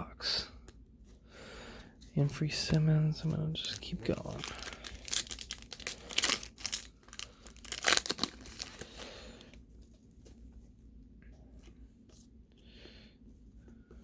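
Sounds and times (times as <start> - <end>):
card pack wrapper crinkling: 3.2 - 9.5.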